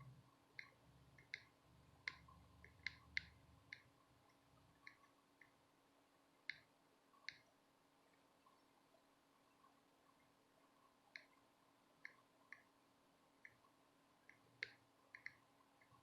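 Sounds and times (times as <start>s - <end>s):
hand tools clicking on circuit board: 14.3s - 16.0s.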